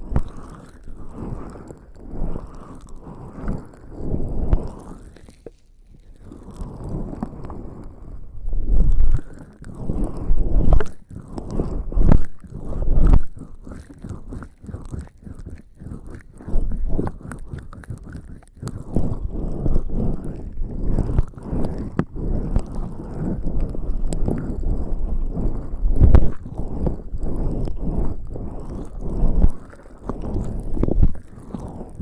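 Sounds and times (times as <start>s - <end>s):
skin rubbing against microphone: 0.0s - 32.0s.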